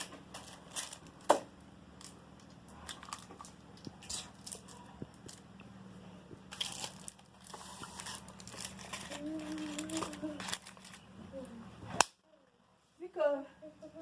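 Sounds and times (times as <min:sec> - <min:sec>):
rustling: 0:06.5 - 0:11.6.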